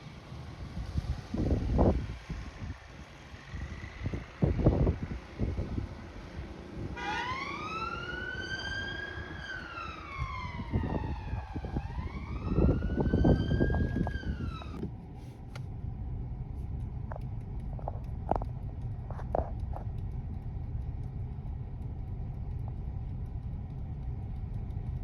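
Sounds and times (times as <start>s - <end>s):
low rumble: 0.0s - 25.0s
emergency siren wailing: 6.8s - 14.8s.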